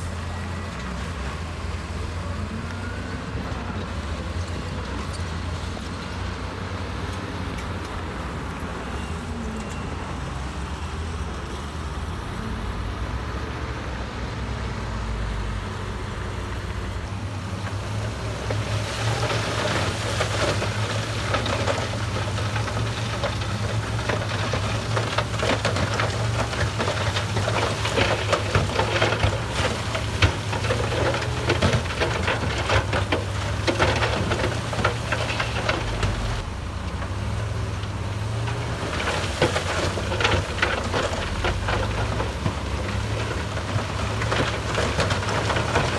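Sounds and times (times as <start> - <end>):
machinery clattering and rattling: 0.0 - 17.1
diesel machinery engine hum: 0.0 - 45.9.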